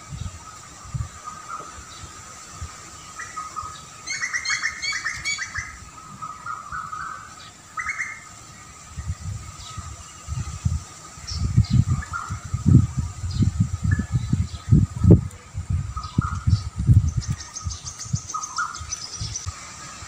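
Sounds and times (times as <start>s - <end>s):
songbird chirping: 0.0s - 20.0s
wind rumble on microphone: 0.0s - 20.0s.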